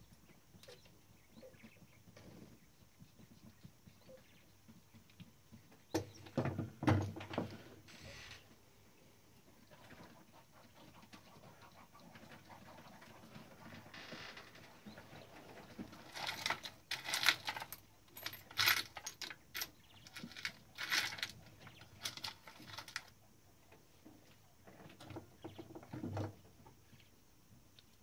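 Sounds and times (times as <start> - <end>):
metal parts clinking: 16.2 - 21.4.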